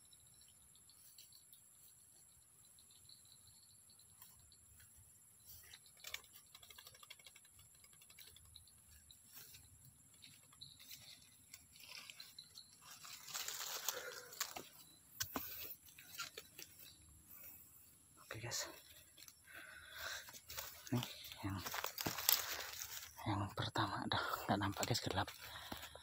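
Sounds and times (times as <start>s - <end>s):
high insect drone: 0.0s - 26.0s
soft rustling: 20.1s - 23.2s.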